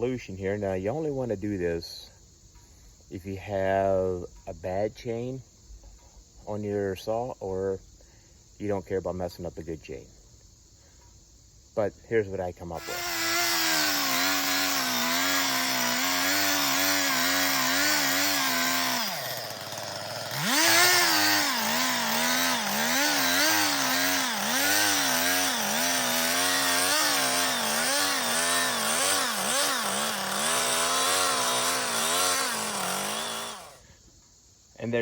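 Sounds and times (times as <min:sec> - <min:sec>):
chainsaw cutting log: 0:12.8 - 0:33.8.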